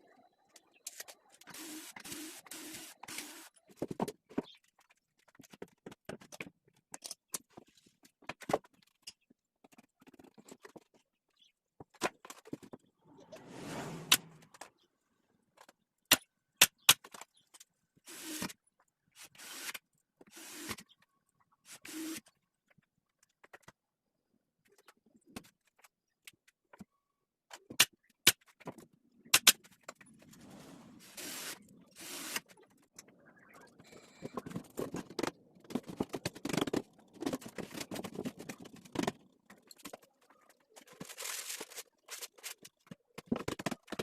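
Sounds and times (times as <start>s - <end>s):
short scraping strokes: 13.0s - 14.5s.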